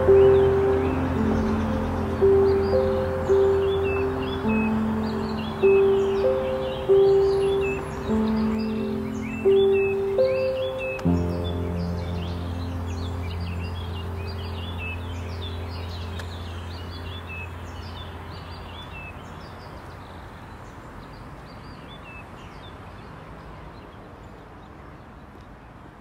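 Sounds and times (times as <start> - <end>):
low held chord: 0.0 - 19.5
songbirds chirping and singing: 0.0 - 23.1.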